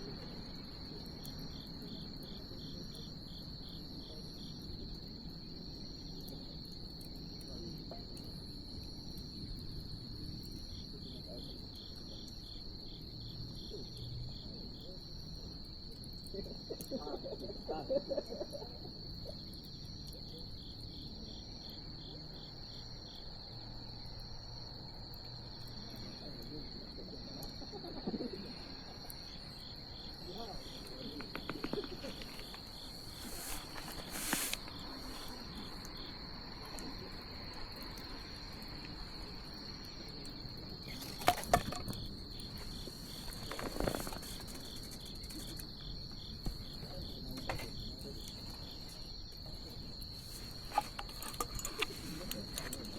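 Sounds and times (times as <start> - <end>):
insect chirping: 0.0 - 52.9
bonfire crackling and popping: 29.0 - 52.9.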